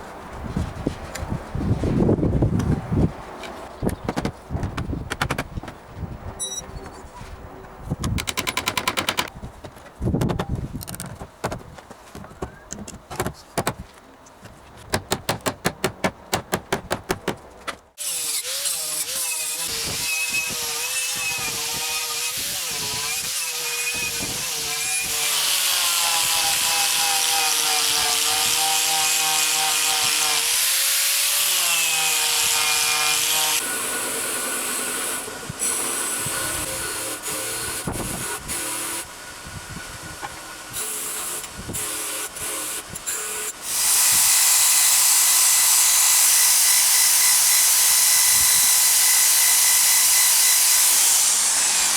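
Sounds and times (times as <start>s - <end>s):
fast regular knocking: 8.1s - 13.8s
power tool cutting wood: 18.0s - 51.9s.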